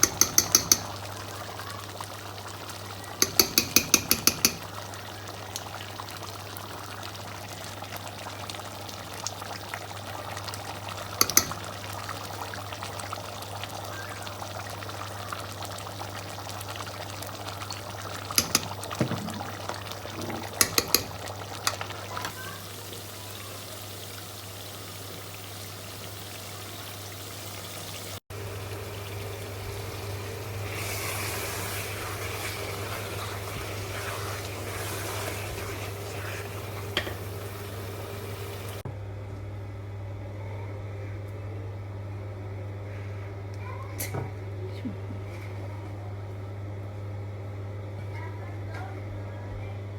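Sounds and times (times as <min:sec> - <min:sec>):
utensil clinking against pot: 0:00.0 - 0:01.0, 0:03.2 - 0:04.7, 0:11.2 - 0:11.7, 0:18.3 - 0:19.4, 0:20.4 - 0:21.8.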